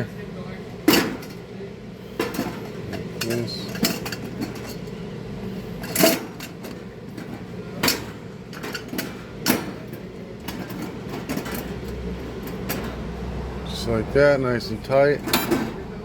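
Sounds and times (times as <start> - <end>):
steady low hum: 0.0 - 16.0
metal parts clanking: 0.9 - 1.4, 2.2 - 5.0, 5.8 - 13.1, 14.9 - 15.8.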